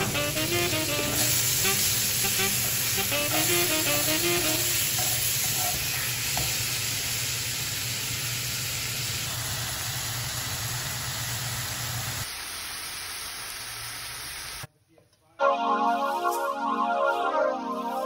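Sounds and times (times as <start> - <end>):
chicken sizzling in oil: 0.0 - 14.7.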